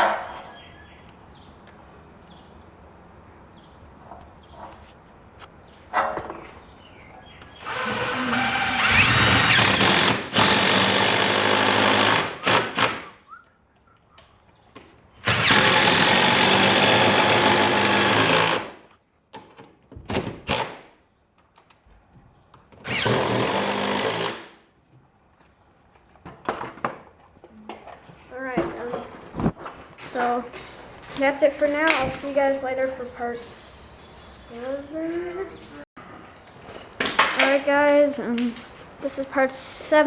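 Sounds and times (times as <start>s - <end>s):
power drill running: 7.6s - 13.0s, 15.2s - 18.7s, 22.8s - 24.4s.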